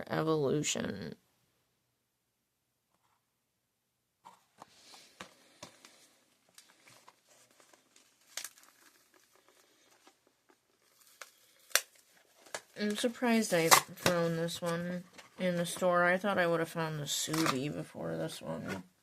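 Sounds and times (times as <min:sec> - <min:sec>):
plastic and card crinkling: 0:04.3 - 0:16.5.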